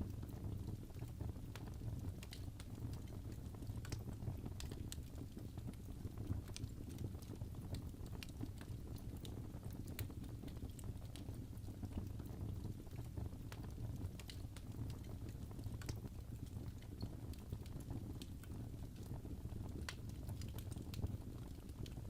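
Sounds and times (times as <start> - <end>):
low fire rumble: 0.0 - 22.0
wood fire crackling: 0.0 - 22.0.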